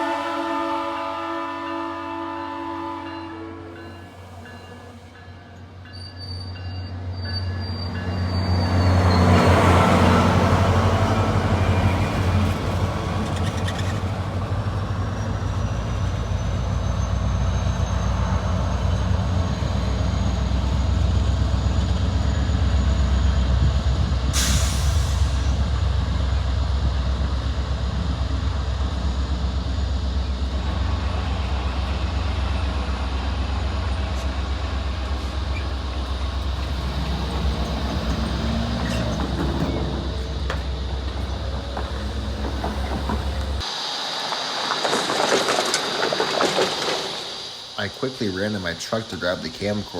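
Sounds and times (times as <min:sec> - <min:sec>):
diesel locomotive rumbling: 0:00.0 - 0:49.9
brake air hiss: 0:24.3 - 0:25.7, 0:33.9 - 0:49.9.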